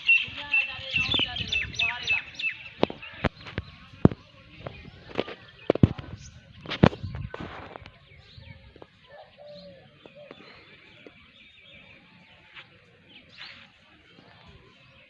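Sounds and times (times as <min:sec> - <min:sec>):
small birds chirping: 0:00.0 - 0:15.0
dove cooing: 0:09.0 - 0:11.1.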